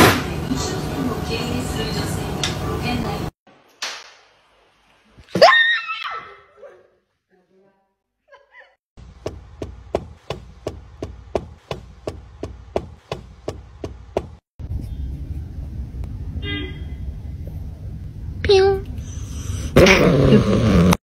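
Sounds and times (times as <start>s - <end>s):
low rumble: 14.6s - 19.7s.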